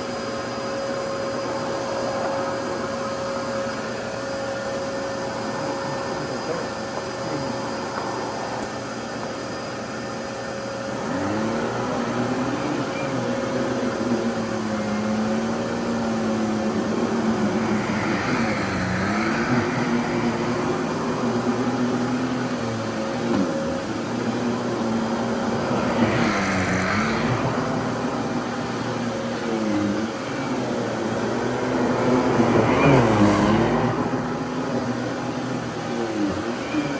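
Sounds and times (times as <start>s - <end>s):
vacuum cleaner motor humming: 0.0s - 36.9s.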